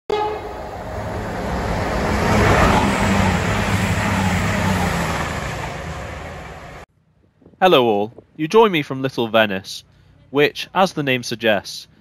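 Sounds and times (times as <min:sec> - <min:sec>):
train passing rumble: 0:00.1 - 0:07.6.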